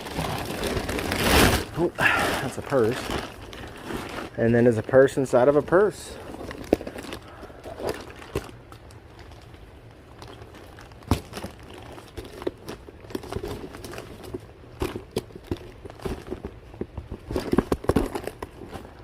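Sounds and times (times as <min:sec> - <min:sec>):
rummaging through bags: 0:00.0 - 0:19.0.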